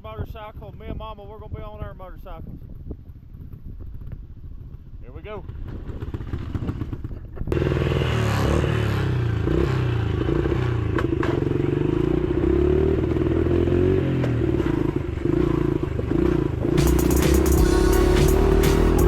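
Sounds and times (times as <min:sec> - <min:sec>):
dirt bike engines revving: 0:07.5 - 0:13.0.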